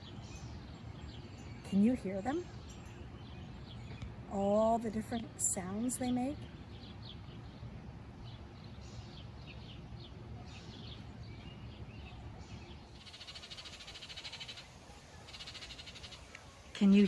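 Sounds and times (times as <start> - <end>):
rapid pulsing bird trill: 10.7 - 16.4.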